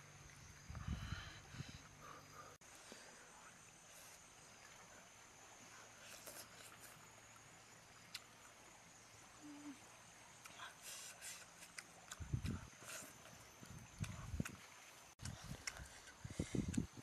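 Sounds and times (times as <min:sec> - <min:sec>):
person chewing food: 0:15.2 - 0:16.9.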